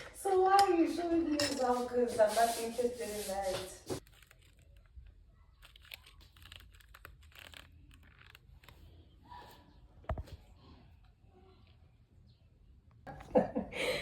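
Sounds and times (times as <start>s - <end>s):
objects being handled: 0.0s - 8.9s.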